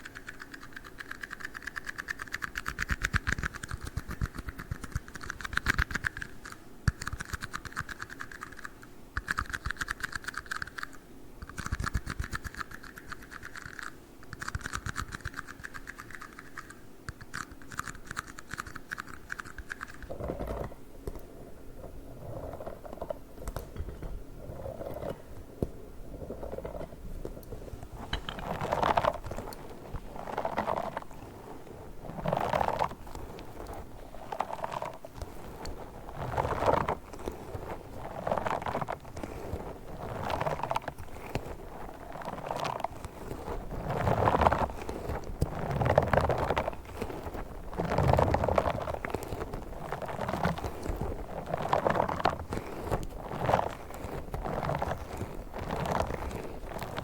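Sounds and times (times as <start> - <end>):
tapping and clicking on tiny cups: 0.0 - 21.3
soft rubbing and handling sounds: 0.0 - 57.0.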